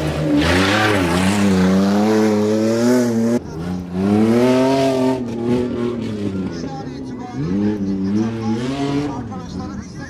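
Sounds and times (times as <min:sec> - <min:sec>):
off-road engine revving: 0:00.0 - 0:10.0.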